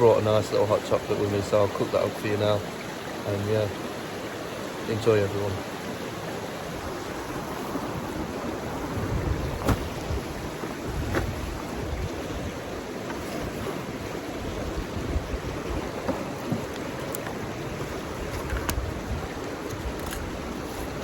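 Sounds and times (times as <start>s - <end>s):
wind buffeting microphone: 6.7s - 21.0s.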